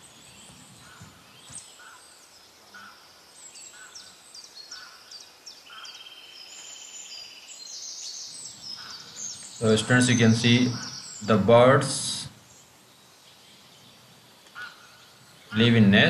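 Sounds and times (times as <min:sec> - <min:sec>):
bird trill: 0:00.0 - 0:11.7
small birds chirping: 0:00.0 - 0:16.0.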